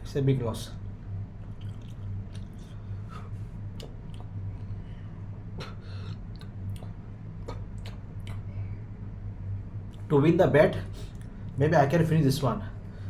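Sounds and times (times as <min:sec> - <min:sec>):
steady low hum: 0:00.0 - 0:13.0
eating mouth smacks and clicks: 0:01.4 - 0:04.8, 0:05.6 - 0:08.5, 0:11.0 - 0:11.4.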